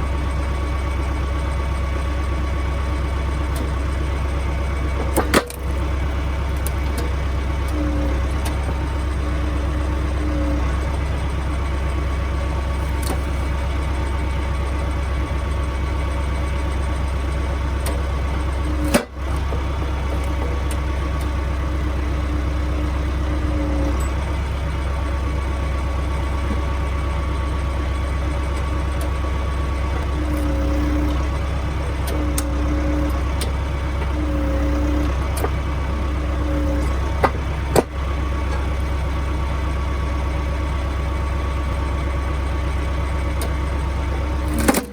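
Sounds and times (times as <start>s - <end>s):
hydraulic humming tone: 0.0s - 44.9s
tractor diesel engine running: 0.0s - 44.9s.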